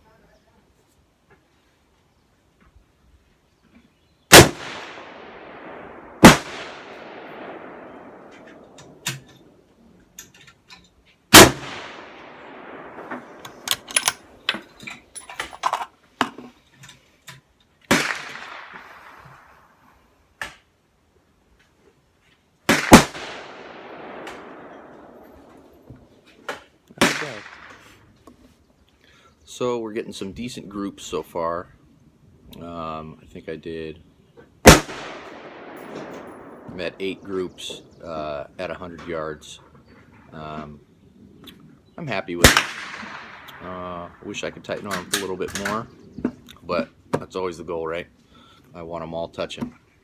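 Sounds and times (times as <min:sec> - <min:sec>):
rifle shots echoing: 0:04.3 - 0:09.6, 0:11.3 - 0:14.5, 0:17.9 - 0:19.8, 0:22.7 - 0:26.2, 0:27.0 - 0:27.9, 0:34.6 - 0:37.9, 0:42.4 - 0:45.7.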